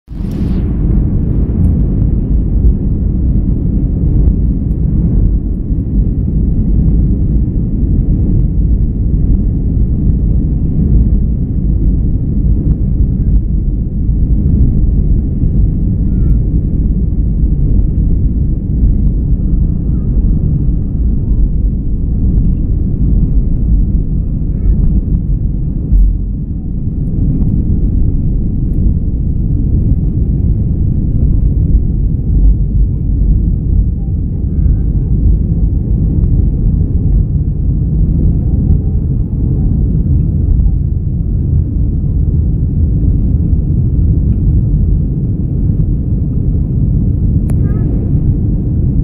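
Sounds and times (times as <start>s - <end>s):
jet engines rumbling in cabin: 0.1s - 49.0s.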